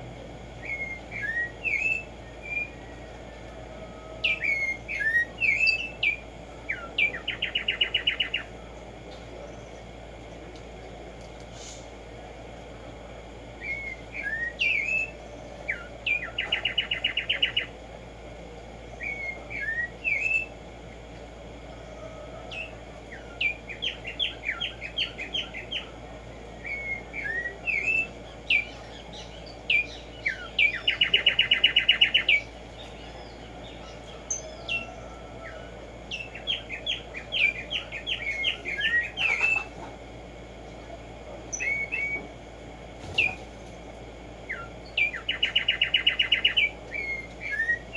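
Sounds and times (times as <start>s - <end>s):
sparrow singing: 0.6s - 8.6s, 13.6s - 17.8s, 18.8s - 20.6s, 21.8s - 39.9s, 41.5s - 42.4s, 43.0s - 47.9s.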